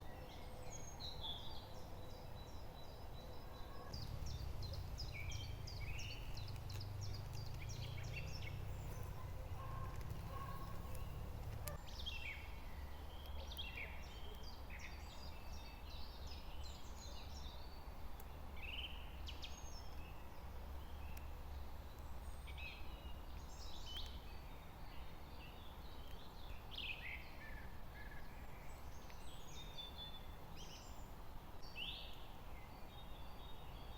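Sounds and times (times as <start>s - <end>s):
birds chirping and trilling: 0.0s - 33.9s
low steady rumble: 1.5s - 13.2s.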